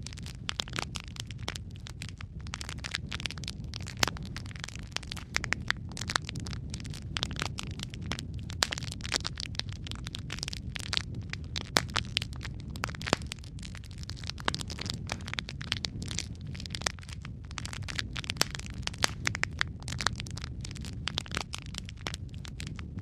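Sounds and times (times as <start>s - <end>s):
low rumble of flame: 0.0s - 23.0s
wood fire crackling: 0.0s - 23.0s.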